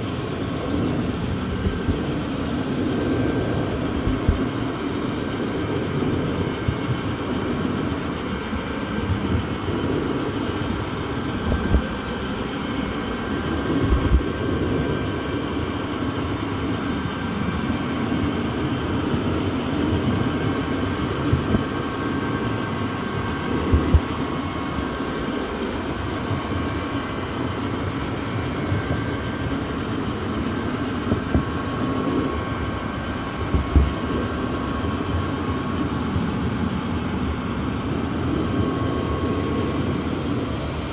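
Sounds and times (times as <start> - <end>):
train rumbling on track: 0.0 - 40.9
low thumps: 31.0 - 34.4.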